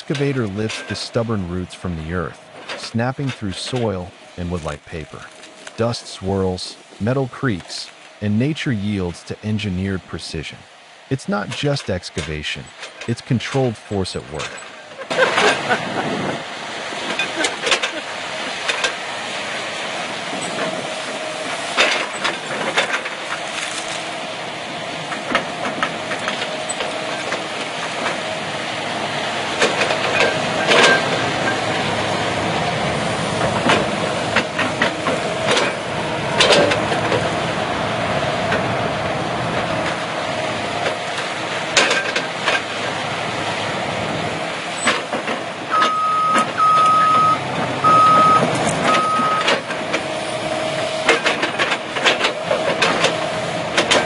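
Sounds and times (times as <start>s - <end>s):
heavy machinery humming: 0.0s - 54.0s
reversing alarm beeping: 45.7s - 49.6s.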